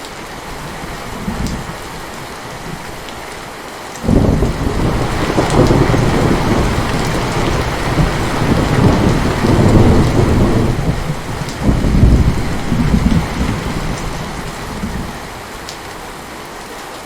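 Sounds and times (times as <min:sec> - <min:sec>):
heavy rain falling: 0:00.0 - 0:17.0
thunder rumbling: 0:04.0 - 0:16.3.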